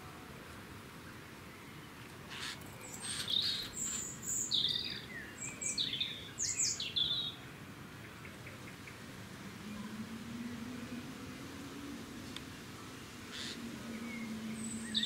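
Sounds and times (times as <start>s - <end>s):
birds chirping: 1.4s - 7.4s, 12.9s - 15.0s.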